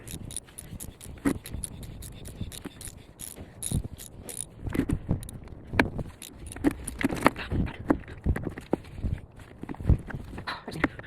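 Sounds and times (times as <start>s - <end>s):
metallic clicks of hand tools: 0.0s - 5.4s, 6.1s - 7.3s.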